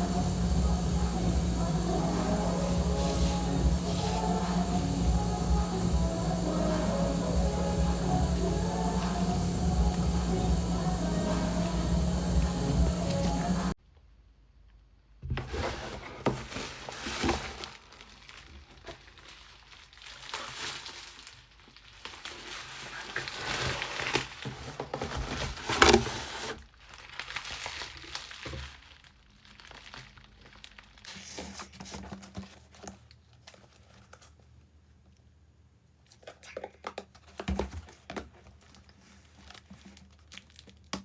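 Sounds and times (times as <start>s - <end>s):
plastic packaging crinkling: 0.0s - 13.6s, 15.7s - 34.6s, 36.1s - 41.0s
plastic tearing: 15.5s - 34.5s, 36.1s - 41.0s.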